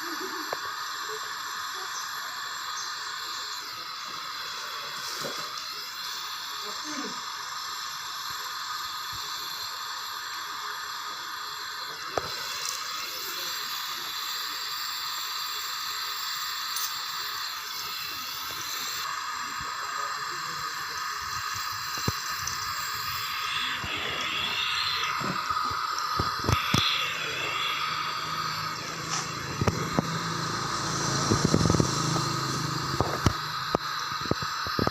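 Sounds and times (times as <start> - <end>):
welding arc hissing: 0.0 - 34.9
sharp click: 29.1 - 30.1.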